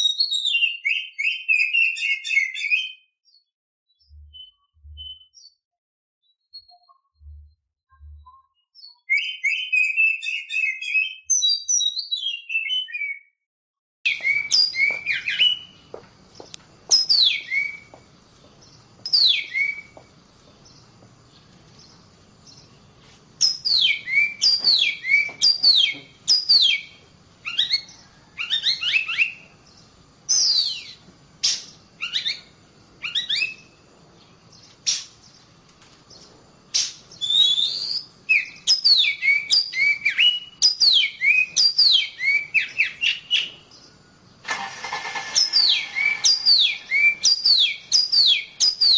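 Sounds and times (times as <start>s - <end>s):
bird sharp down-slurred whistles: 14.1s - 15.8s, 16.9s - 17.9s, 19.1s - 20.0s, 23.4s - 29.4s, 30.3s - 33.7s, 36.7s - 43.5s, 45.4s - 48.9s
bird chattering: 45.0s - 48.4s.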